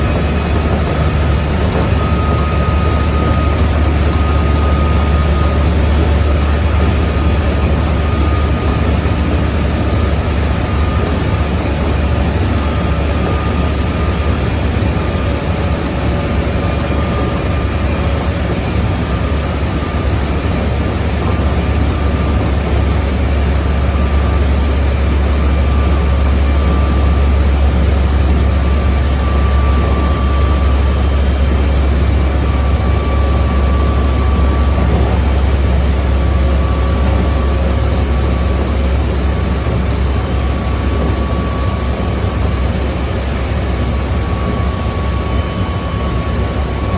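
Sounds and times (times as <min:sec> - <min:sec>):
train wheels rumbling on rail: 0:00.0 - 0:46.9.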